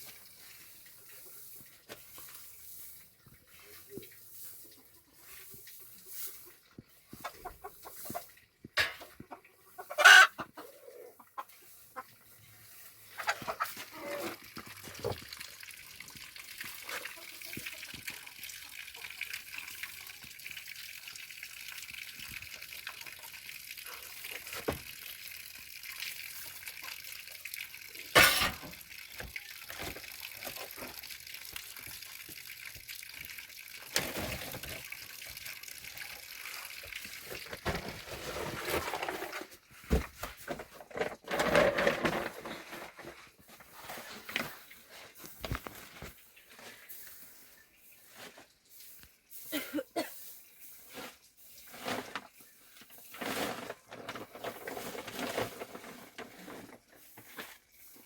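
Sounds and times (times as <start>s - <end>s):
chickens clucking: 6.9s - 12.4s, 13.0s - 14.4s
loud chicken calls: 9.8s - 11.4s.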